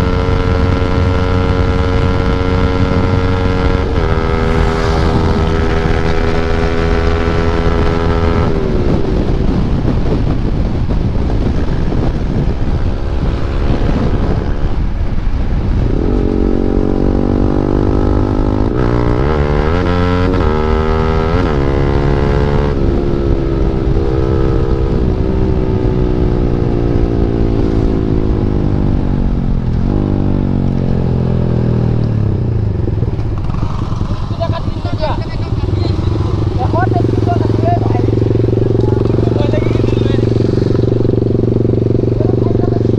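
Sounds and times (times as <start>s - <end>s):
motorcycle engine revving: 0.0s - 10.5s, 15.7s - 42.9s
wind rush: 1.6s - 16.9s, 32.2s - 42.9s.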